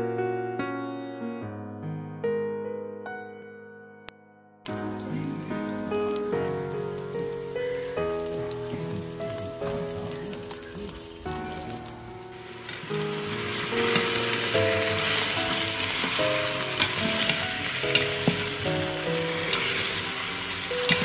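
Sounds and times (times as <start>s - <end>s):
chicken sizzling in hot oil: 4.7s - 21.0s.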